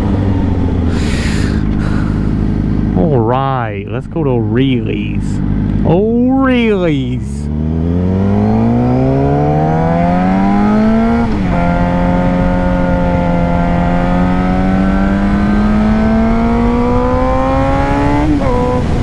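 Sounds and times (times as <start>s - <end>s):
motorcycle engine accelerating: 0.0s - 3.4s, 7.4s - 19.0s.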